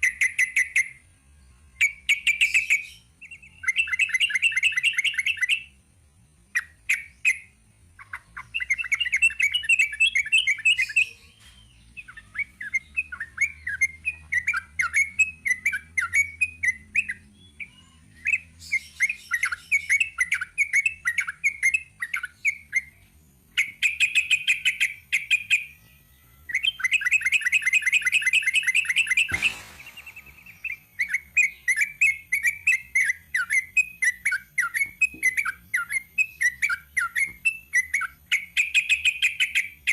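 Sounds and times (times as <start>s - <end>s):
bird singing chattering runs: 26.6s - 39.9s
sharp knock: 29.3s - 30.9s.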